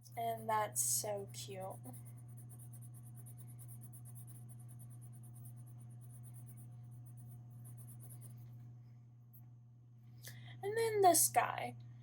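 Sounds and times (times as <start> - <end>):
steady low hum: 0.0 - 12.0
pencil scratching on paper: 1.2 - 8.4.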